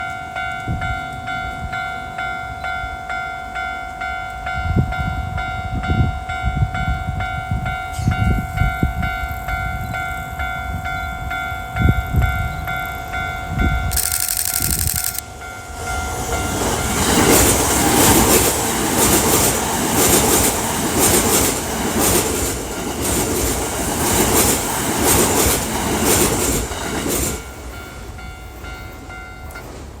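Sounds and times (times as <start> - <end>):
crossing bell ringing: 0.0 - 24.7, 25.4 - 30.0
train wheels clacking over rail joints: 16.4 - 27.6.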